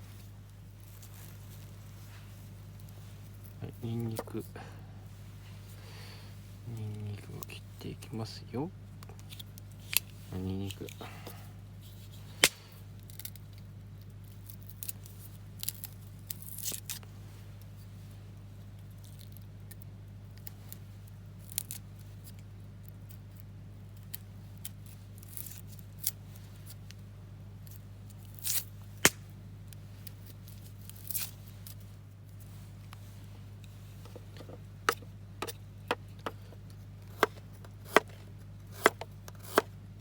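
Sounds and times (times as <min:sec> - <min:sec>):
steady low hum: 0:00.0 - 0:40.0
knife cutting on cutting board: 0:38.7 - 0:39.7.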